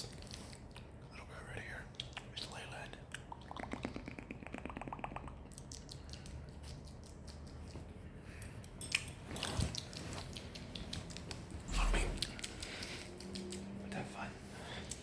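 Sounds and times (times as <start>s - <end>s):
soft mouth clicks: 1.9s - 7.8s, 9.7s - 14.0s
pulsing mouth rattle: 3.3s - 7.6s.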